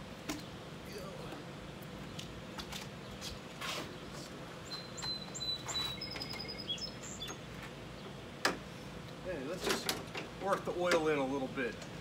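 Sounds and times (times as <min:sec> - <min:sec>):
birds chirping: 0:02.9 - 0:08.3.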